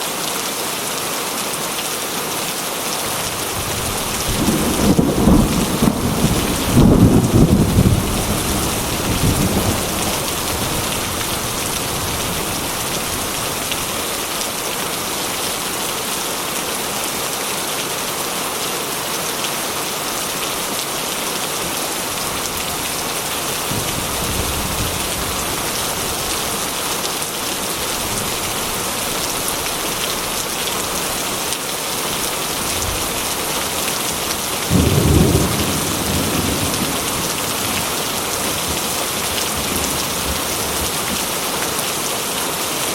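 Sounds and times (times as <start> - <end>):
heavy rain on metal roof: 0.0 - 42.9
thunder rumbling: 3.3 - 14.1, 22.2 - 26.6, 34.7 - 41.0.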